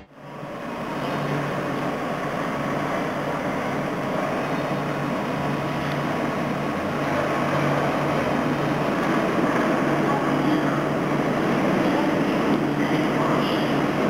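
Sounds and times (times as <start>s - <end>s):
tram rumbling past: 0.0s - 14.0s.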